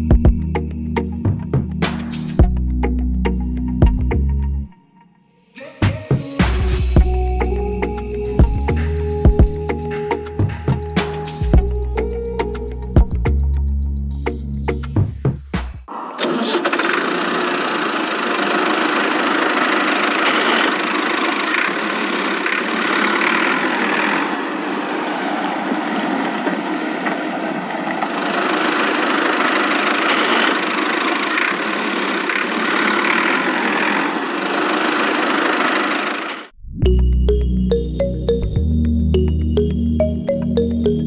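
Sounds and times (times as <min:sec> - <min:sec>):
small motor running: 0:16.2 - 0:25.2, 0:27.9 - 0:36.5.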